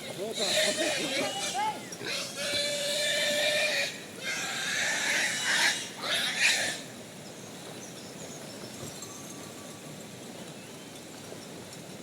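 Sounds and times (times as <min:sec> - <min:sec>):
pig squealing: 0:00.3 - 0:06.8.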